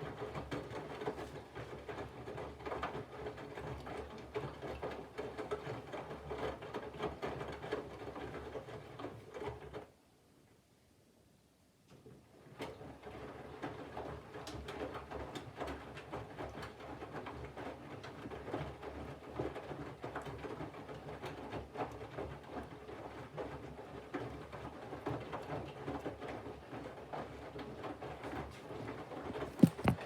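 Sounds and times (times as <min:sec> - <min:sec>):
washing machine drum tumbling laundry: 0:22.4 - 0:30.0
soft irregular thuds: 0:29.3 - 0:30.0.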